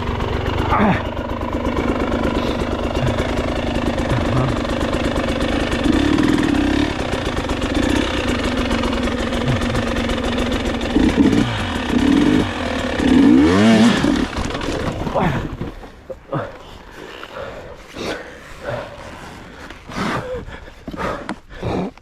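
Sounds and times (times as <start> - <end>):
motorcycle engine revving: 0.0 - 20.3.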